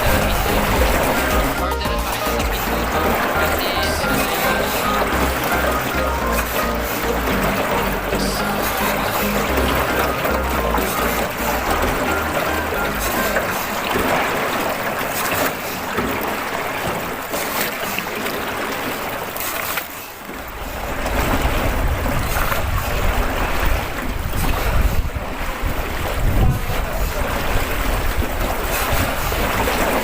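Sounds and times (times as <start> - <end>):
water hiss from boat ride: 2.6 - 30.0
wind buffeting microphone: 20.8 - 30.0.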